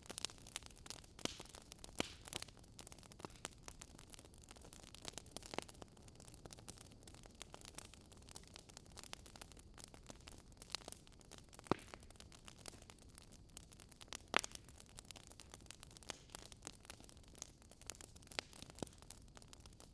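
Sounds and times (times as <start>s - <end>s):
loud fire pops: 0.0s - 3.6s, 10.2s - 13.1s, 14.1s - 19.9s
wood crackling in campfire: 0.0s - 19.9s.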